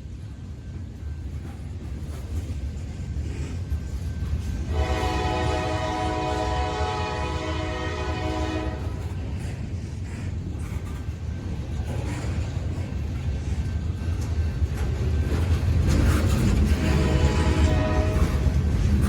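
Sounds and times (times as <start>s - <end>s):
passing train rumble: 0.0s - 19.0s
locomotive horn blast: 4.7s - 9.1s, 16.8s - 18.6s.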